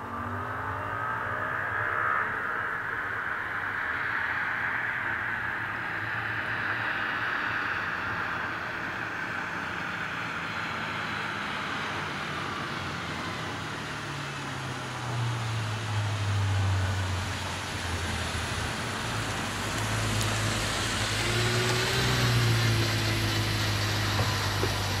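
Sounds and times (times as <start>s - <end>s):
car engine running: 18.0s - 25.0s.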